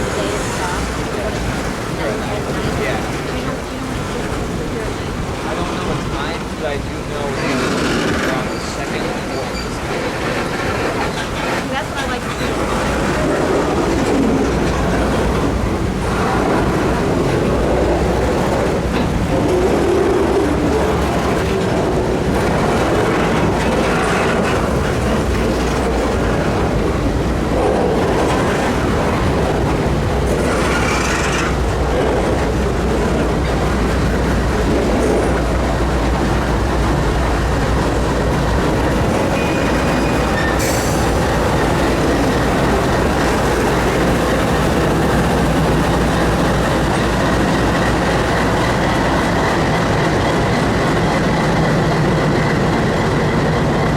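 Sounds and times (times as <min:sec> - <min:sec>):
freight cars rumbling on rails: 0:00.0 - 0:53.9
train wheel squeals: 0:07.4 - 0:10.8, 0:39.0 - 0:44.6
train wheels clicking: 0:07.5 - 0:53.9.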